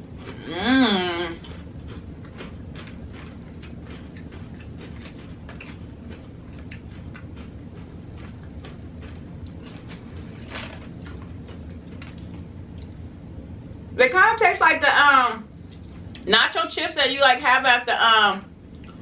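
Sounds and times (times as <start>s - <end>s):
steady low hum: 0.0s - 19.0s
chewing crunchy chips: 1.3s - 13.0s.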